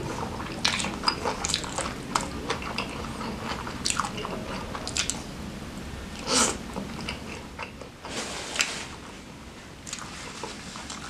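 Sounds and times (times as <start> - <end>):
wet chewing and mouth clicks: 0.2 - 5.2, 9.8 - 11.0.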